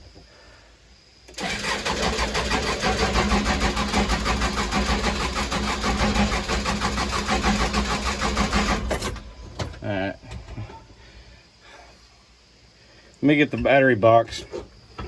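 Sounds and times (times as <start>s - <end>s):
diesel engine cranking: 1.3s - 10.9s.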